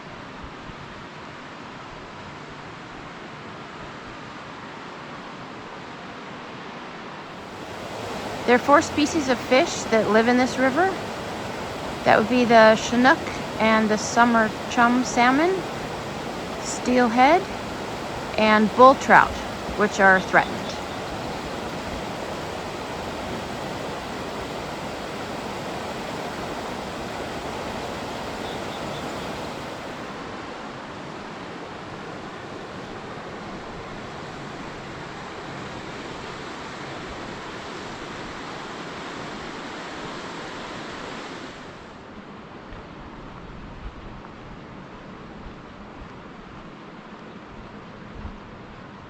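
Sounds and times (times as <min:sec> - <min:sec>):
river rushing: 0:07.3 - 0:42.2.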